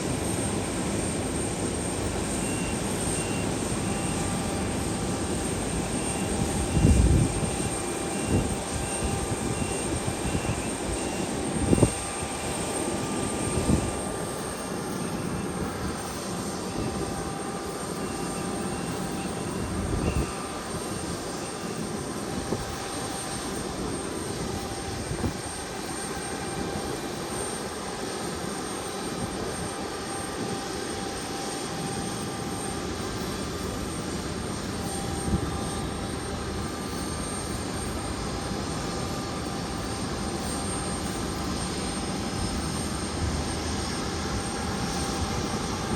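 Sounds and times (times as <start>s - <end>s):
airliner engines running: 0.0s - 45.9s.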